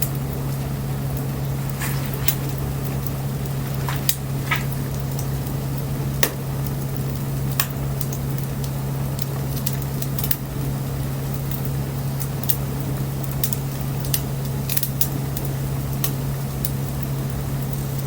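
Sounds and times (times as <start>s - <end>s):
bonfire crackling and popping: 0.0s - 18.0s
steady low hum: 0.0s - 18.0s
soft hiss: 0.2s - 6.0s.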